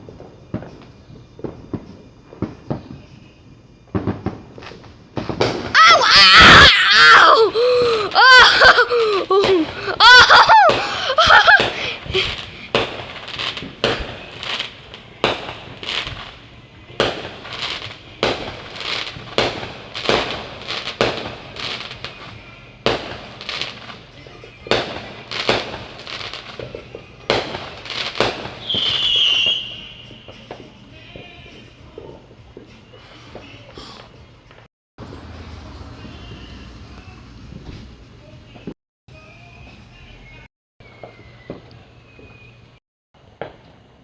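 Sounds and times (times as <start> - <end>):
fireworks bangs: 0.0 - 34.0, 35.0 - 38.8, 40.8 - 44.0.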